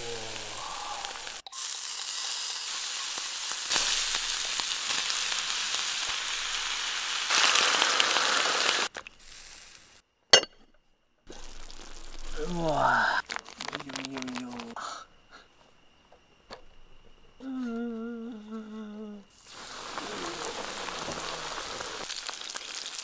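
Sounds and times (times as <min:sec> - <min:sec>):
food sizzling on a pan: 0:00.0 - 0:10.0, 0:11.3 - 0:14.8, 0:19.3 - 0:23.0.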